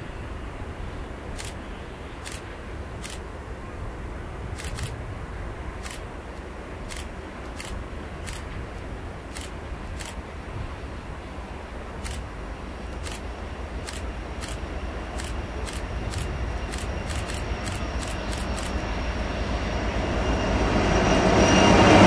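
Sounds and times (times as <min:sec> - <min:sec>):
distant freight train rumble: 0:00.0 - 0:22.0
sharp high clicks: 0:02.2 - 0:02.4, 0:03.0 - 0:03.2, 0:04.6 - 0:04.9, 0:05.8 - 0:06.0, 0:06.9 - 0:08.5, 0:12.0 - 0:12.2, 0:12.9 - 0:18.8.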